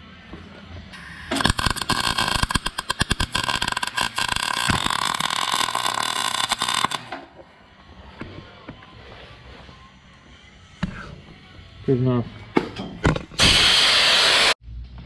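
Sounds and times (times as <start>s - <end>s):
welder arc crackling: 1.0s - 7.2s.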